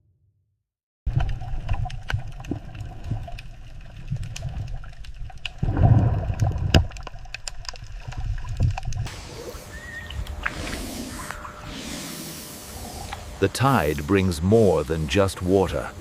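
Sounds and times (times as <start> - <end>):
water splashing and gurgling: 1.1 - 13.4.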